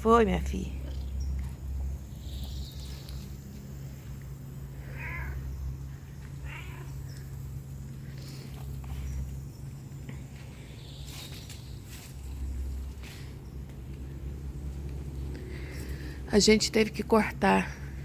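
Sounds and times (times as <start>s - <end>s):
cat meowing: 4.8s - 5.5s, 6.4s - 7.1s.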